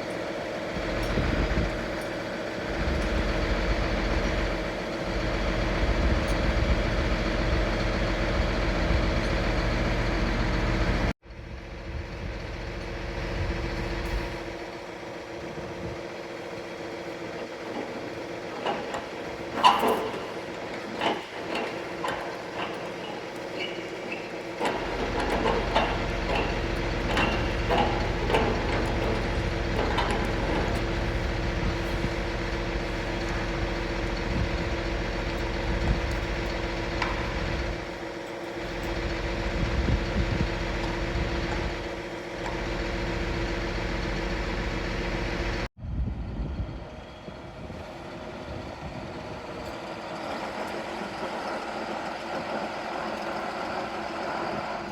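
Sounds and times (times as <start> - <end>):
tractor diesel engine running: 0.0 - 54.9
deep engine rumble: 2.6 - 14.7, 24.6 - 49.6.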